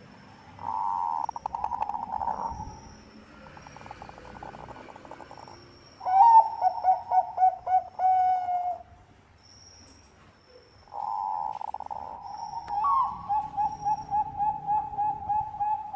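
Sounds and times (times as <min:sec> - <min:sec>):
dove cooing: 0:00.6 - 0:02.7, 0:03.6 - 0:08.8, 0:10.9 - 0:15.9.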